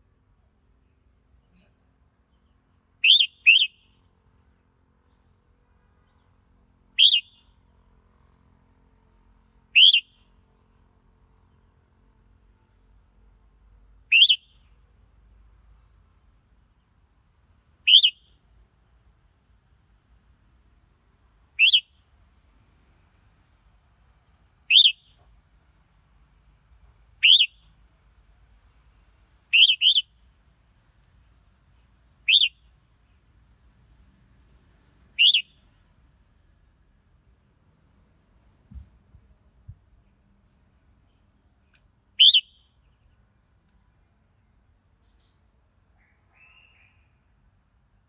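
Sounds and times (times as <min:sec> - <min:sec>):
bird chirping: 0:02.3 - 0:04.0, 0:07.0 - 0:07.5, 0:09.7 - 0:10.2, 0:14.1 - 0:15.2, 0:17.5 - 0:18.4, 0:21.6 - 0:21.9, 0:24.7 - 0:25.2, 0:26.9 - 0:27.7, 0:29.4 - 0:30.1, 0:32.3 - 0:32.7, 0:35.2 - 0:35.7, 0:42.2 - 0:43.2
bulbul calling: 0:03.0 - 0:03.9, 0:07.0 - 0:07.4, 0:09.8 - 0:10.1, 0:14.1 - 0:14.5, 0:17.9 - 0:18.2, 0:21.6 - 0:21.9, 0:24.7 - 0:25.1, 0:27.2 - 0:27.6, 0:29.5 - 0:30.1, 0:32.3 - 0:32.6, 0:35.2 - 0:35.6, 0:42.2 - 0:42.7.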